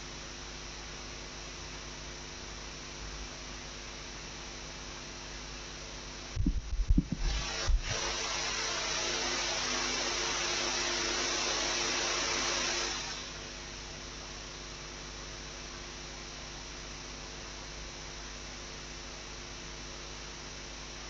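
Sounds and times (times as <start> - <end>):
low thumps: 6.4 - 7.9.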